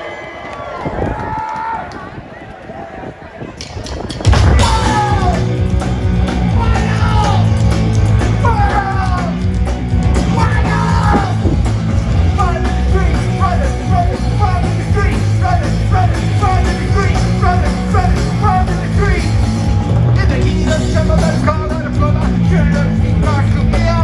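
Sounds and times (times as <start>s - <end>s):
punk rock band playing: 4.1s - 24.0s.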